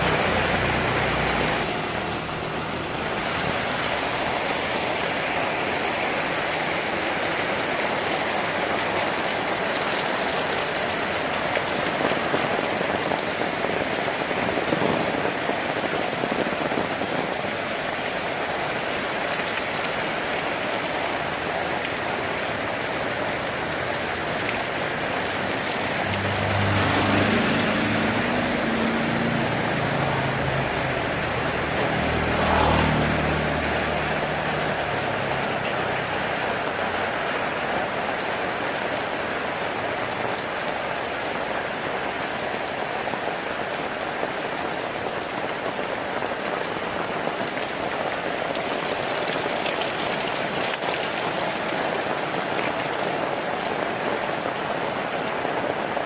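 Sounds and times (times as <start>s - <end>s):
passing vehicle engine hum: 0.0s - 7.6s, 22.6s - 37.6s
heavy rain: 0.0s - 56.0s.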